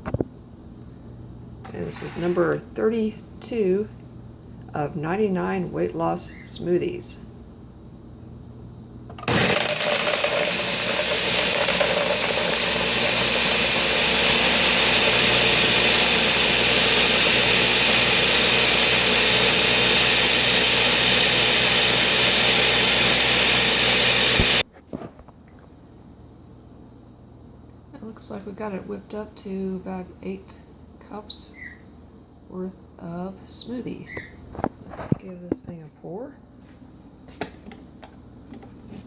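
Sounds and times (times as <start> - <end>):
blender running: 9.2 - 24.6.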